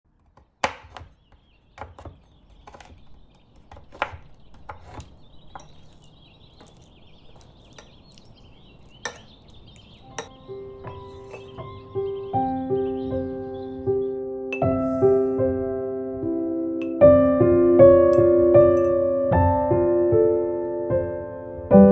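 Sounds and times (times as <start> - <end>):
knife chopping on wooden board: 0.2 - 8.0, 10.2 - 11.7
faint high chirping: 1.1 - 15.2.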